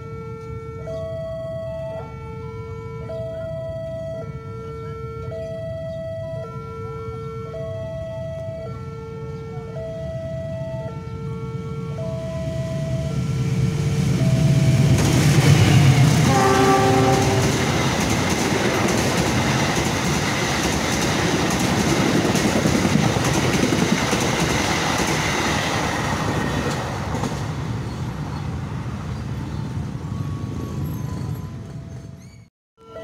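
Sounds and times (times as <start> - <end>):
locomotive engine rumble: 0.3 - 32.4
train horn blast: 10.8 - 17.8
train wheels clattering on rails: 14.6 - 27.9.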